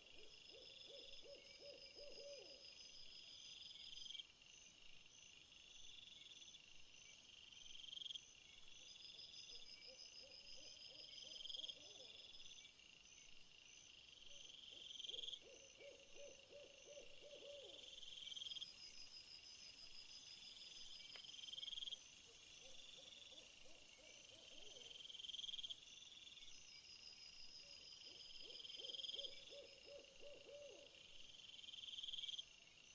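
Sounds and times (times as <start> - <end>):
insects chirping at night: 0.0 - 32.9.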